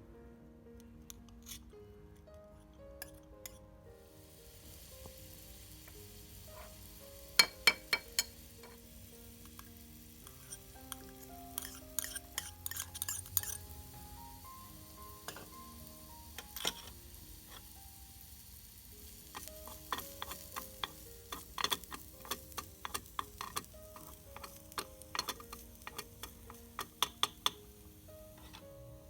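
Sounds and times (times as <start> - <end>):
background music: 0.0 - 29.0
food sizzling in oil: 3.0 - 29.0
small utensils clinking: 5.8 - 13.7, 14.5 - 15.8, 16.4 - 17.8, 19.0 - 28.8.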